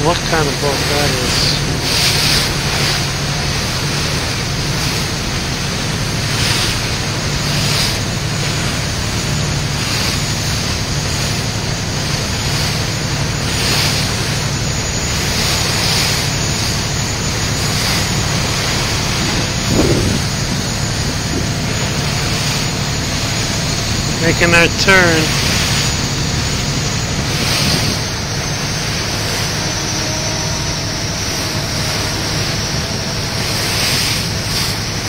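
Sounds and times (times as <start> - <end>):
ferry engine droning: 0.0 - 35.0
water rushing past a hull: 0.0 - 35.0
wind buffeting the microphone: 16.5 - 24.2, 25.4 - 28.7.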